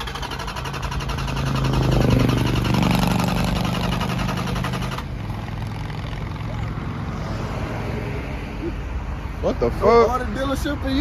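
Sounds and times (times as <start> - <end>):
car engine starting and running: 0.0 - 7.8.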